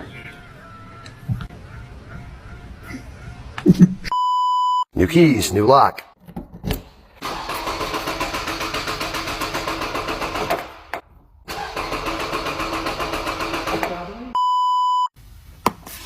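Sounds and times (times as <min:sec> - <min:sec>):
short electronic beep: 0:04.1 - 0:04.9, 0:14.4 - 0:15.1
car engine cranking: 0:07.2 - 0:14.3.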